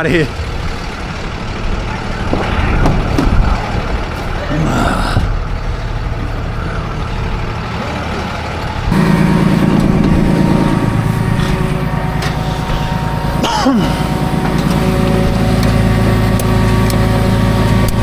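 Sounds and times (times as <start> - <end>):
truck engine droning: 0.0 - 18.0
short falling tone: 8.9 - 15.6.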